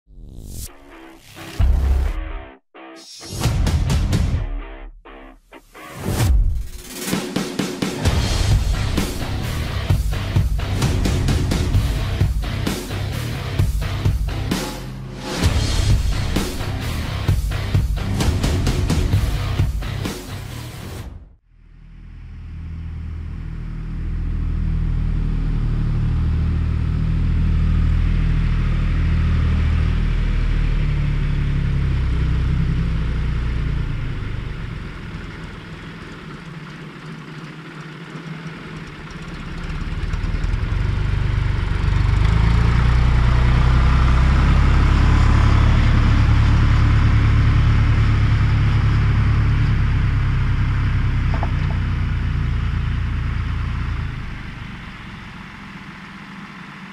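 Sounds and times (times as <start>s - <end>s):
diesel tractor engine running: 21.7s - 56.9s.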